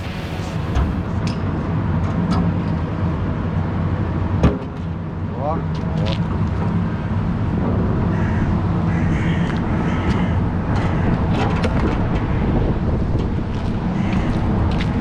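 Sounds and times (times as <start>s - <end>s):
engine running steadily: 0.0s - 1.3s.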